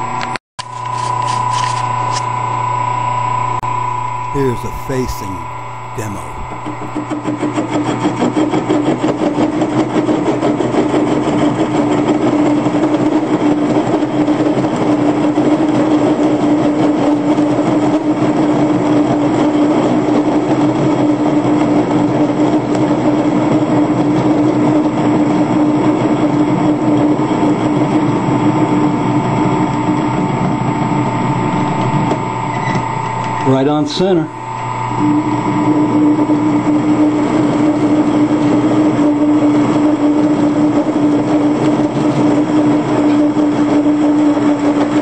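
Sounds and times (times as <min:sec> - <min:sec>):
wood lathe humming: 0:02.6 - 0:04.5, 0:30.7 - 0:33.6, 0:34.3 - 0:35.9.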